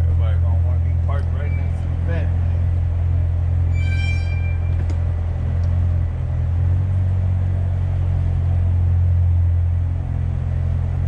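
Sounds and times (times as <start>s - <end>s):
car engine deep drone: 0.0s - 11.0s.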